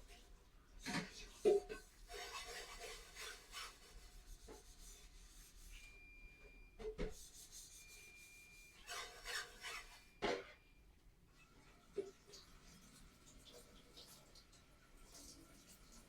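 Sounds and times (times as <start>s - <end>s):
scraping strokes: 2.0s - 5.8s, 7.1s - 10.4s.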